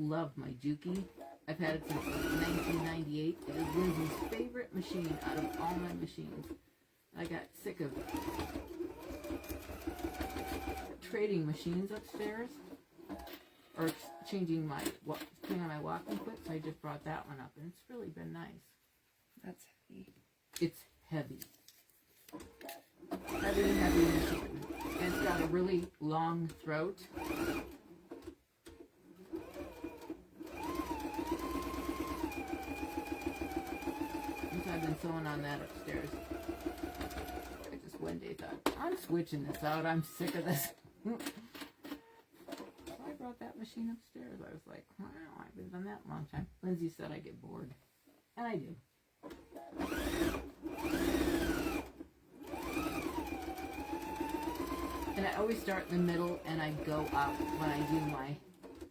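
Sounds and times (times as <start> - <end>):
sewing machine stitching: 0.9 - 6.6, 7.2 - 17.0, 22.3 - 43.2, 49.2 - 58.9
sewing machine motor whine: 1.8 - 5.9, 7.9 - 11.0, 23.1 - 25.7, 27.1 - 27.8, 29.3 - 37.7, 49.7 - 58.9.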